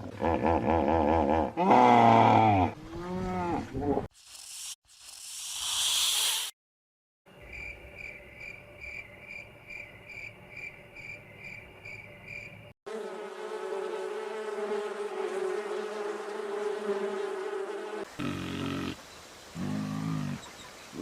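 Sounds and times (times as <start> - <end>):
flying insect buzzing: 4.2 - 6.5, 12.9 - 19.0
cricket chirping: 7.3 - 12.7.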